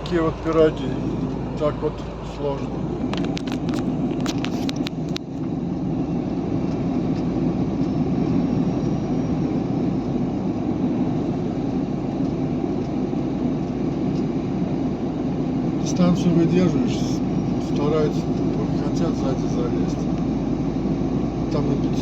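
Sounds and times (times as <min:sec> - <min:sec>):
truck engine drone: 0:00.0 - 0:22.0.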